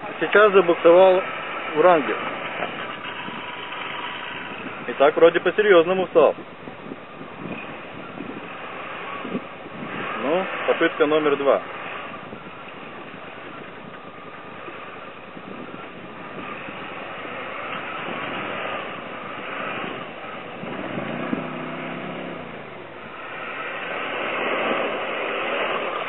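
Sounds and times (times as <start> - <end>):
off-road vehicle engines revving: 0.0 - 26.0.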